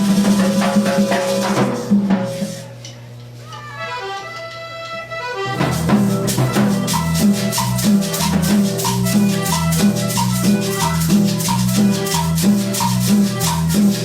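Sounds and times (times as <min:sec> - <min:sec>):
fast rattling percussion: 0:00.0 - 0:02.6, 0:05.6 - 0:14.0
bass line: 0:05.4 - 0:14.0.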